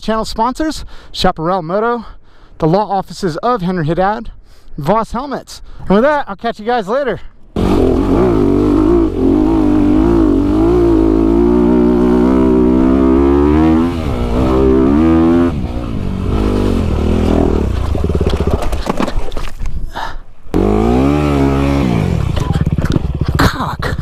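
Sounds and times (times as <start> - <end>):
dirt bike engine revving: 7.6 - 18.9, 20.6 - 23.5.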